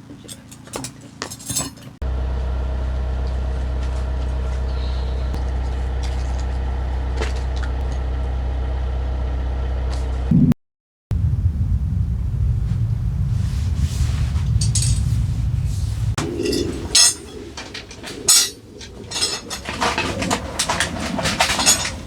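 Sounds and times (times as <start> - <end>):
vehicle engine idling: 2.0 - 10.3, 11.2 - 17.2.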